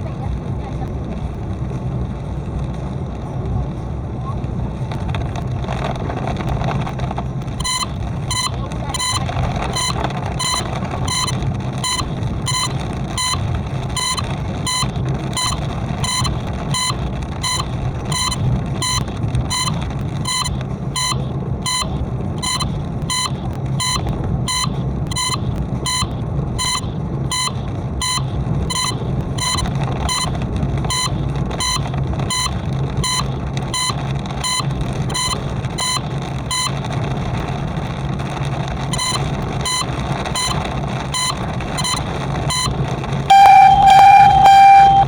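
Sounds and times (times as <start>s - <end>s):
car engine and tyres on wet road: 0.0s - 45.0s
faint ticking: 7.4s - 45.0s
electronic warning beep: 7.6s - 36.8s, 38.9s - 45.0s.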